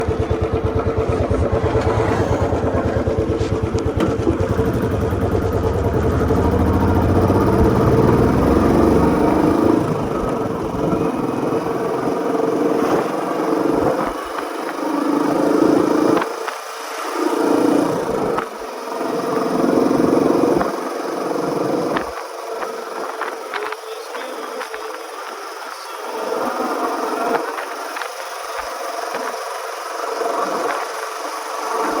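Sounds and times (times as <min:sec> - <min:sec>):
motorcycle engine thumping: 0:00.0 - 0:11.6.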